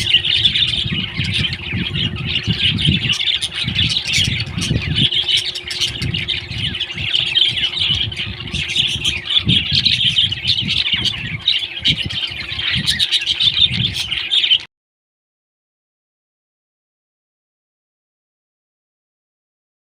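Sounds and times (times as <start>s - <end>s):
parrot chirps and squawks: 0.0s - 14.7s.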